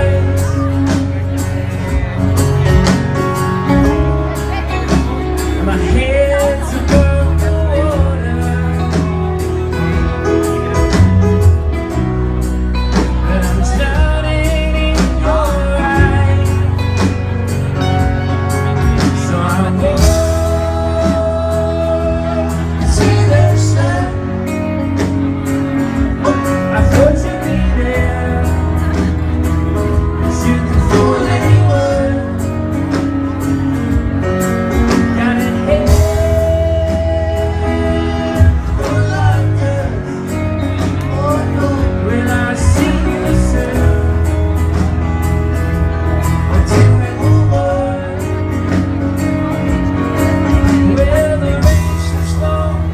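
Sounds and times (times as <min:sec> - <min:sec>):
bass: 0:00.0 - 0:52.9
guitar: 0:00.0 - 0:52.9
person singing: 0:00.0 - 0:52.9.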